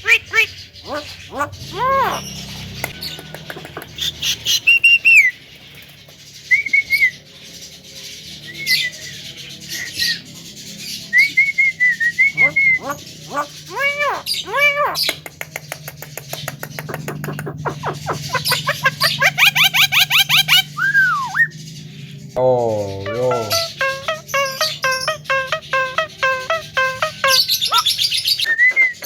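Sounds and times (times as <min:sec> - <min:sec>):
harsh bird calls: 0:00.0 - 0:29.0
bird whistled notes: 0:06.5 - 0:07.2, 0:11.0 - 0:13.5, 0:17.8 - 0:21.5, 0:22.9 - 0:29.0.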